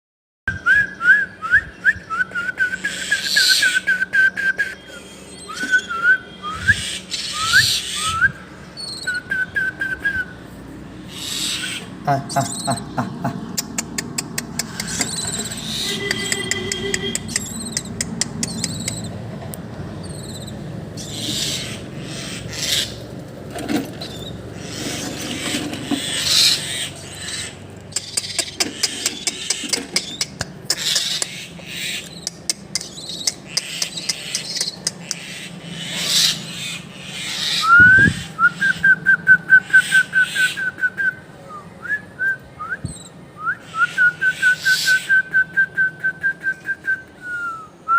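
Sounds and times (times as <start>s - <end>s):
small bird chirping in rapid trills: 4.8s - 9.3s, 11.1s - 19.3s, 20.0s - 23.1s, 24.0s - 38.2s.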